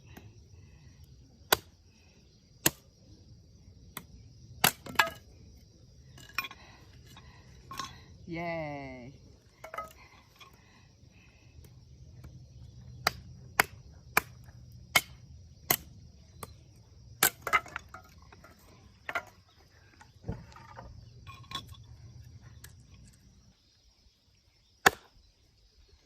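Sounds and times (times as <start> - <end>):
tool striking logs: 1.5 - 1.8, 2.6 - 2.9, 3.9 - 5.3, 9.6 - 10.6, 13.0 - 16.6, 17.2 - 19.4, 24.8 - 25.2.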